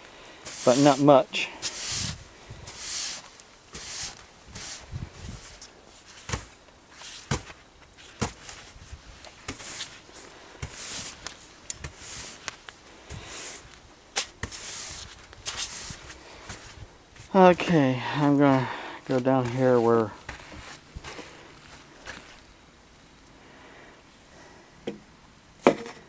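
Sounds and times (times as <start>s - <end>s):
footsteps crunching in snow: 0.4s - 22.5s.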